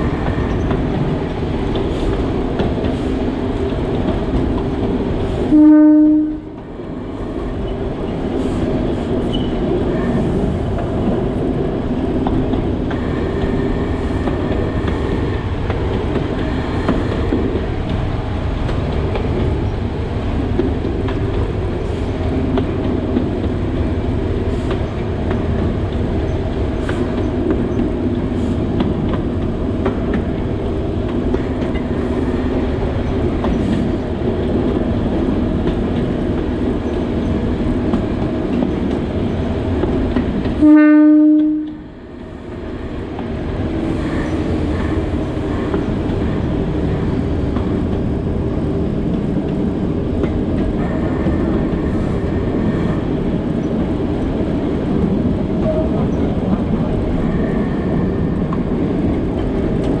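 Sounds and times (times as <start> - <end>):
train running on track: 0.0 - 60.0
train horn blast: 5.5 - 6.6, 40.6 - 41.8.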